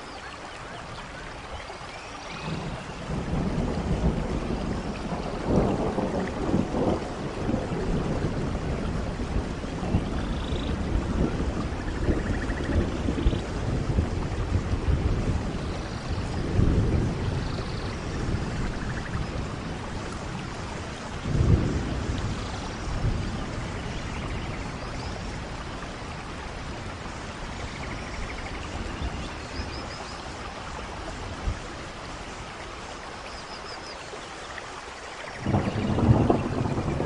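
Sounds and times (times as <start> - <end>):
steady rain: 0.0 - 37.0
rolling thunder: 2.3 - 32.0, 35.4 - 37.0.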